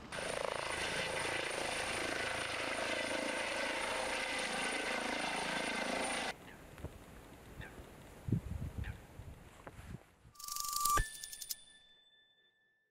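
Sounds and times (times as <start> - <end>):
helicopter rotor noise: 0.1 - 6.3.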